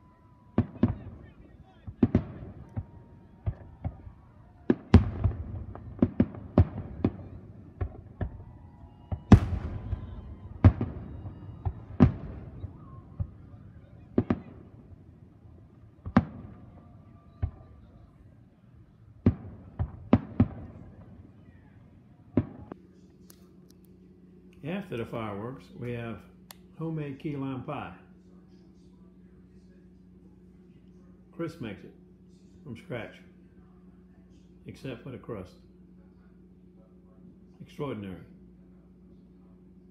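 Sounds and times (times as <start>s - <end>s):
fireworks booming: 0.0s - 18.1s, 19.2s - 21.5s, 22.3s - 22.8s.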